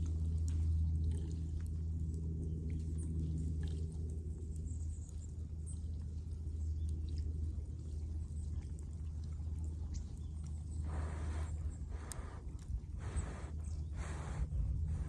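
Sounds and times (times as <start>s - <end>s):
fire low rumble: 10.5s - 15.0s
fire crackling: 10.8s - 15.0s.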